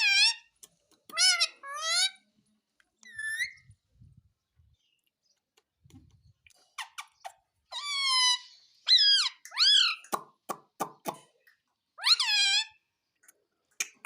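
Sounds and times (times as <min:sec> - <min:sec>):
parrot calling and squawking: 0:00.0 - 0:00.5, 0:01.1 - 0:02.3, 0:03.0 - 0:03.7, 0:06.7 - 0:10.1, 0:12.0 - 0:12.9.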